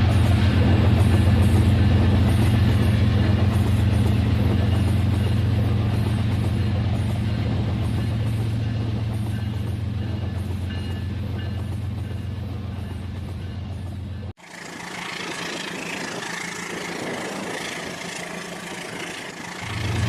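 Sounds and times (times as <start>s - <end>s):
wheels rattling on track: 0.0s - 20.0s
toy train motor hum: 14.4s - 20.0s.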